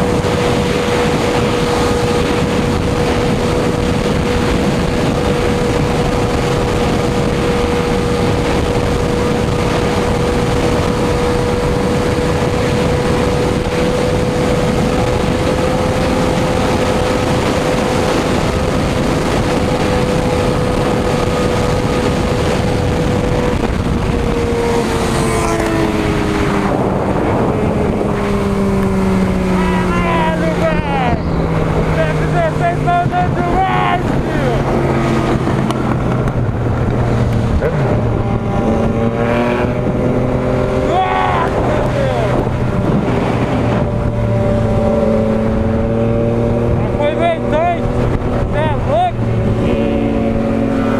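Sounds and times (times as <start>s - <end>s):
motorcycle engine running: 0.0s - 50.9s
wind rush: 0.0s - 50.9s.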